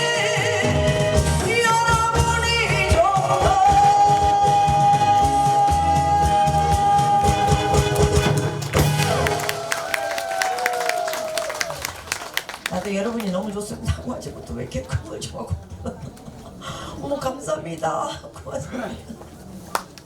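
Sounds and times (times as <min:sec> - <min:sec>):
person singing: 0:00.0 - 0:09.3
backing track with drum beat: 0:00.0 - 0:10.2.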